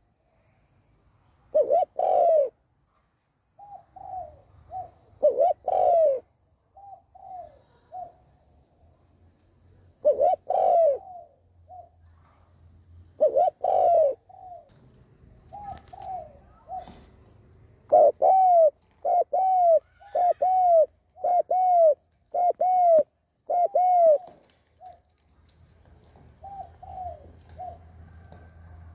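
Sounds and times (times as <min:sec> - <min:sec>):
dove cooing: 0:01.5 - 0:02.6, 0:03.6 - 0:08.2, 0:10.0 - 0:12.0, 0:13.2 - 0:14.7, 0:15.5 - 0:17.2, 0:17.9 - 0:25.1, 0:26.2 - 0:28.5.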